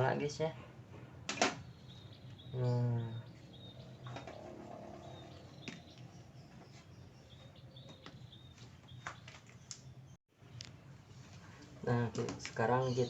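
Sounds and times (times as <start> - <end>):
faint high bird chirps: 1.6 - 10.7.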